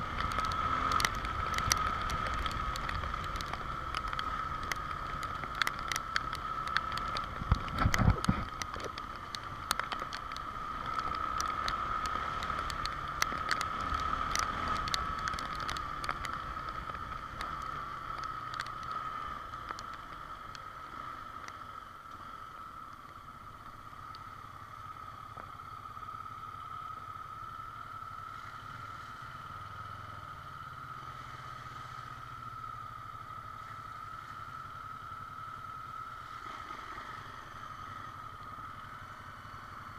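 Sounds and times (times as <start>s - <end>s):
raindrops tapping on microphone: 0.0s - 26.0s
motorcycle engine and road noise: 0.0s - 39.9s.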